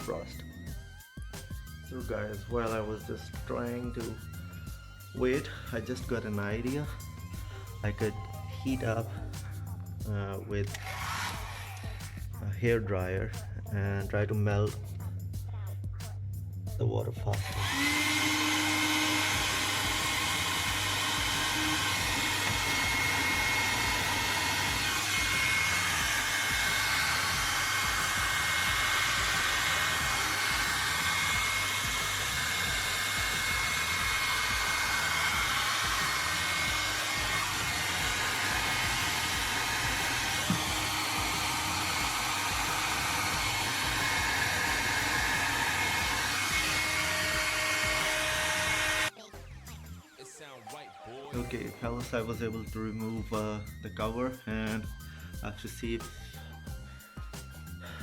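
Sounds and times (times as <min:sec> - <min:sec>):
hair dryer running: 0:01.2 - 0:09.0, 0:10.7 - 0:12.2, 0:17.4 - 0:49.2.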